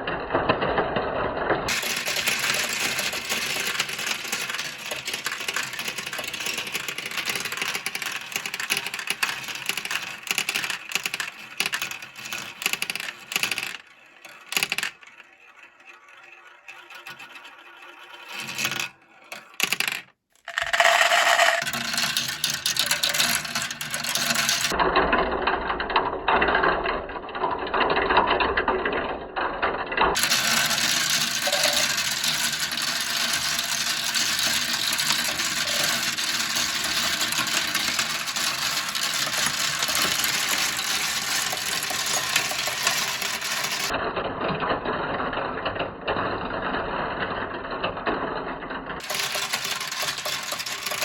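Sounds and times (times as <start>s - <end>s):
marbles clattering down a plastic run: 1.7s - 24.8s, 30.1s - 44.0s, 49.0s - 51.0s.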